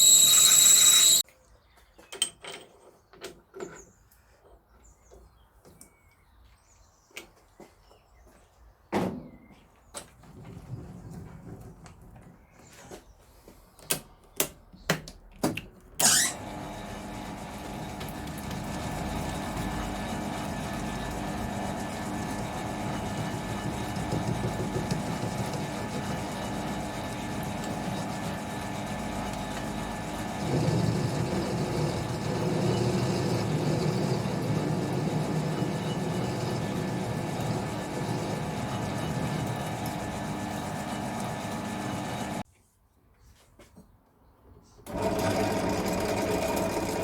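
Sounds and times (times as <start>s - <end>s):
electric motor humming: 0.0s - 1.2s, 16.0s - 42.4s.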